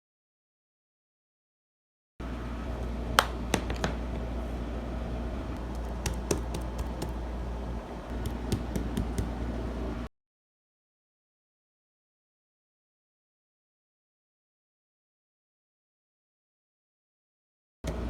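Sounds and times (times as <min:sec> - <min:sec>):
steady low hum: 0:02.2 - 0:10.1.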